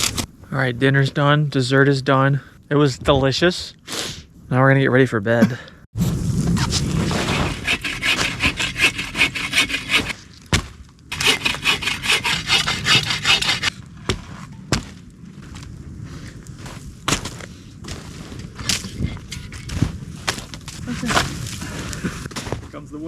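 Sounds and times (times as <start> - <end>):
hand saw cutting wood: 7.0 - 10.2, 11.1 - 13.7.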